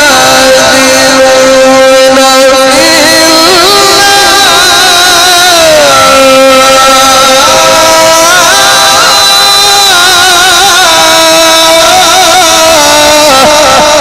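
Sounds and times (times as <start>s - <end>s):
man reciting melodically: 0.0s - 14.0s.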